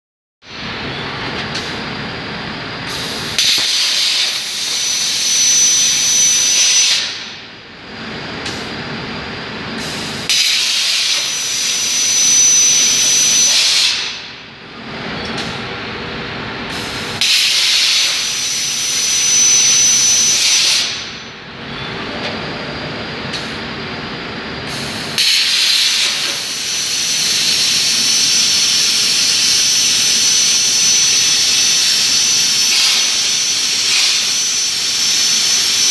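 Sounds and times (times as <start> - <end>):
plasma torch cutting hiss: 2.9 - 4.9, 9.8 - 11.3, 24.7 - 27.7.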